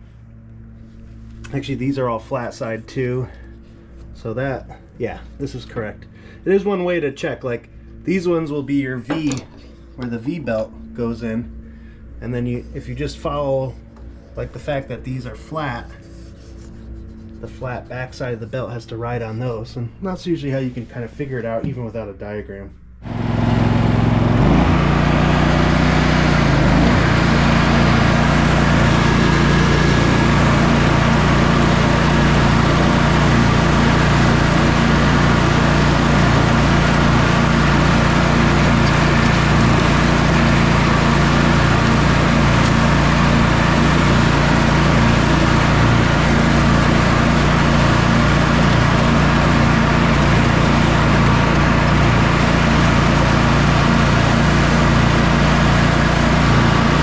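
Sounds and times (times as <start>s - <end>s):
lawn tractor engine running: 23.0s - 57.0s.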